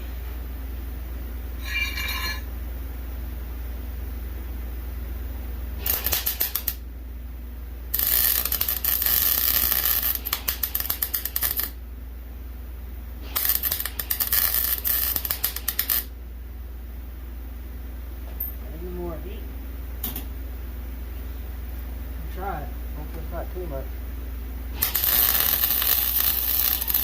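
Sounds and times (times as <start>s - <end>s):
low electrical hum: 0.0s - 27.0s
welding arc crackling: 5.8s - 6.8s, 7.9s - 11.8s, 13.2s - 16.1s, 24.8s - 27.0s.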